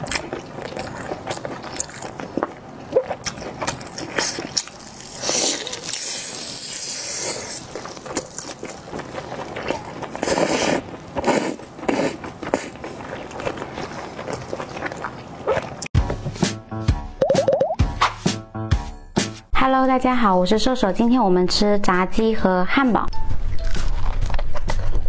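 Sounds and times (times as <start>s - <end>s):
wet chewing and lip smacks: 12.4s - 15.9s.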